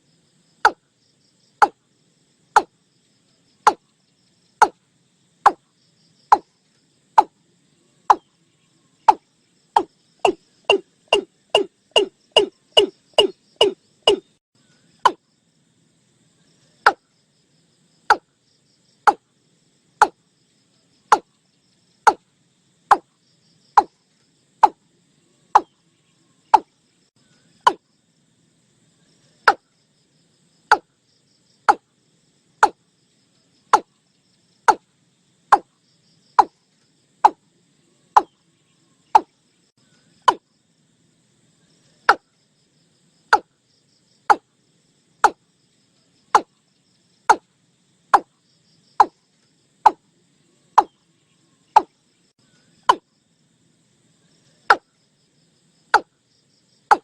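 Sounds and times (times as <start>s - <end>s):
bird calling sharp notes: 9.8s - 14.3s.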